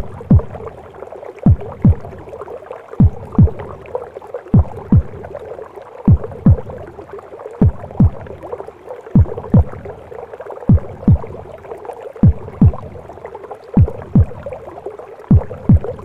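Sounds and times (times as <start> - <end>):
heartbeat thumping: 0.0 - 0.7, 1.4 - 2.2, 3.0 - 3.8, 4.5 - 5.4, 6.1 - 6.9, 7.6 - 8.4, 9.2 - 9.9, 10.7 - 11.5, 12.2 - 13.0, 13.8 - 14.6, 15.3 - 16.0
whooshing gurgling womb noise: 0.0 - 16.0.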